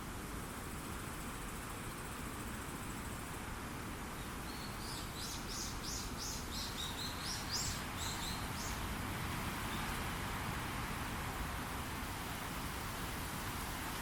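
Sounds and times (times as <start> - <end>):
strong wind through trees: 0.0 - 14.0
songbird chirping: 4.2 - 8.8.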